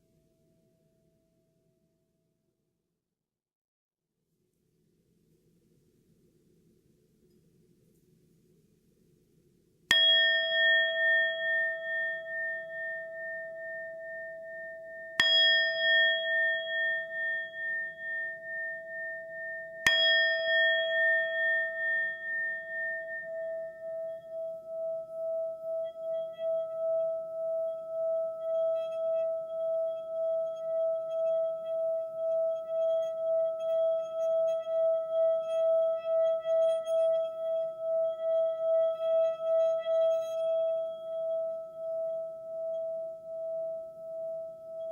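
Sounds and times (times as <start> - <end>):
singing bowl ringing: 9.9 - 44.9.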